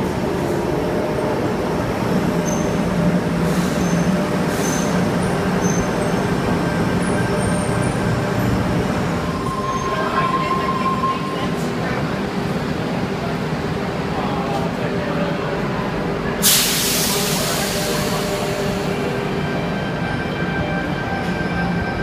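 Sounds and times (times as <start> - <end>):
electric train humming: 0.0 - 14.2
steady high tone: 9.0 - 12.5.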